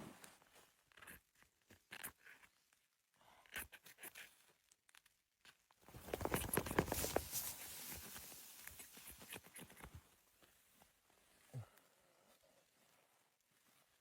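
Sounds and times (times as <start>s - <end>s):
crunching and crackling handling: 5.9s - 9.9s.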